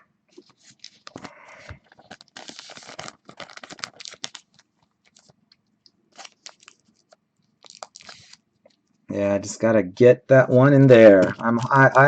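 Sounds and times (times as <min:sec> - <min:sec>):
plastic crinkling and rustling: 0:00.3 - 0:08.9, 0:10.4 - 0:12.0
trading cards clicking and scratching: 0:10.4 - 0:12.0.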